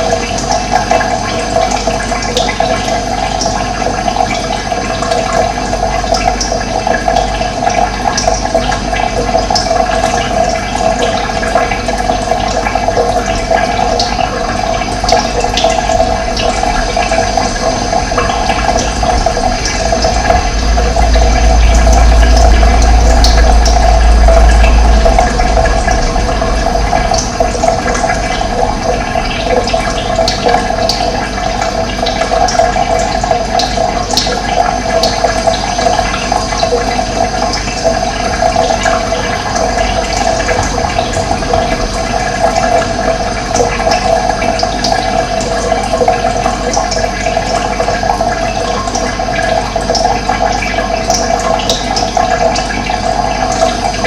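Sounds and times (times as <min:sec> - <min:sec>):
water flowing and splashing: 0:00.0 - 0:54.0
low rumble: 0:11.2 - 0:34.1, 0:36.9 - 0:45.7.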